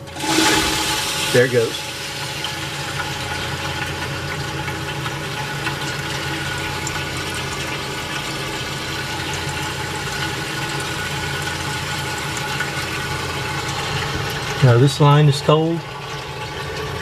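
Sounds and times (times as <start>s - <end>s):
refrigerator compressor humming: 0.0s - 17.0s
hiss of flowing refrigerant: 0.2s - 3.6s.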